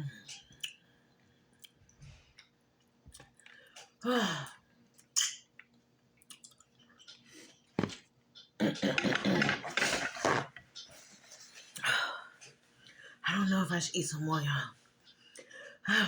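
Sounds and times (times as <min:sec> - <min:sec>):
chewing and lip smacks: 0:00.3 - 0:00.8, 0:01.5 - 0:03.8, 0:04.9 - 0:07.3.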